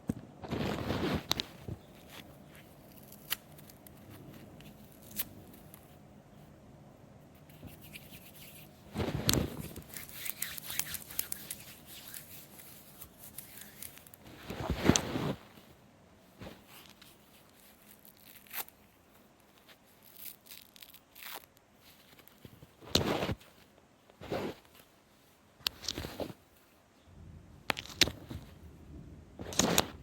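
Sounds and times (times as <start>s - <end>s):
sponge tearing and crackling: 2.0s - 5.8s, 7.8s - 15.4s, 16.6s - 18.9s, 19.7s - 22.4s.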